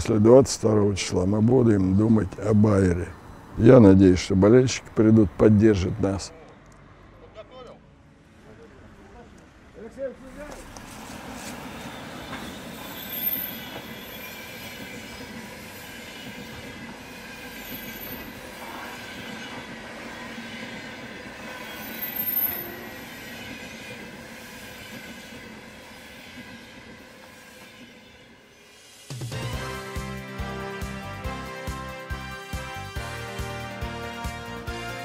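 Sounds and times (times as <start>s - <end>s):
train wheels rumbling on rail: 9.4s - 29.5s
high-pitched wheel squeals: 11.6s - 19.6s, 21.4s - 25.3s.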